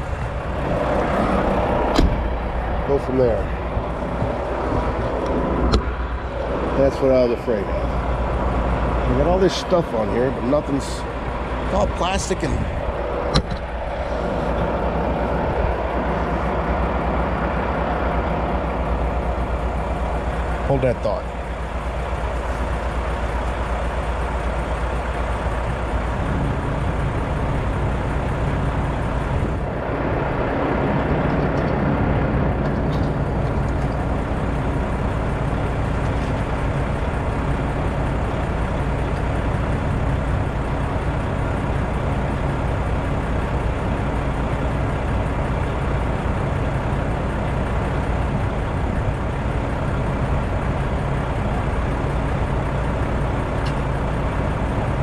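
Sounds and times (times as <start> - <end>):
truck engine humming: 0.0 - 55.0.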